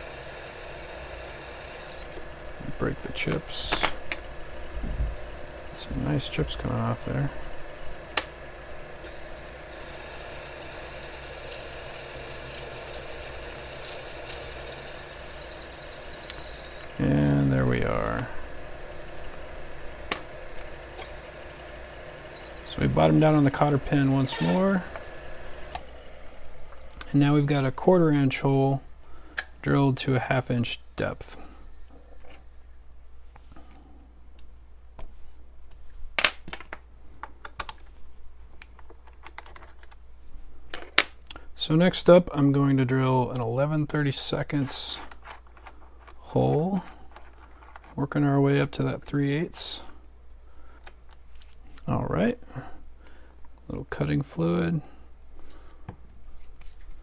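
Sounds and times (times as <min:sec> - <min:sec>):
lathe running: 0:09.7 - 0:16.9, 0:22.2 - 0:23.6
drill bit cutting metal: 0:14.4 - 0:16.9, 0:22.4 - 0:23.5
high-pitched drill bit squeal: 0:14.8 - 0:16.9, 0:22.4 - 0:23.6.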